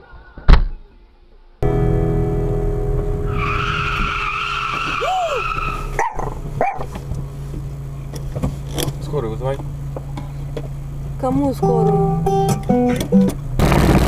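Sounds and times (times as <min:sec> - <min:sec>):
engine and road hum: 0:01.6 - 0:14.0
tyres screeching: 0:03.3 - 0:07.1.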